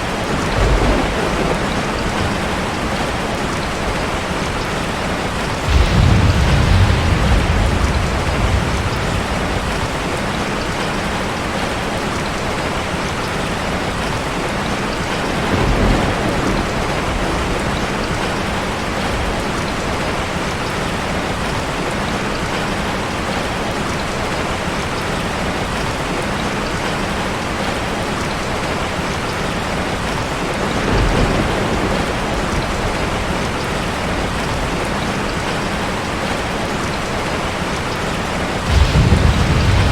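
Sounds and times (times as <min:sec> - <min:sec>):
thunder rumbling: 0:00.0 - 0:11.6, 0:15.2 - 0:20.2, 0:30.5 - 0:35.8, 0:38.6 - 0:39.9
heavy rain hitting a car: 0:00.0 - 0:39.9.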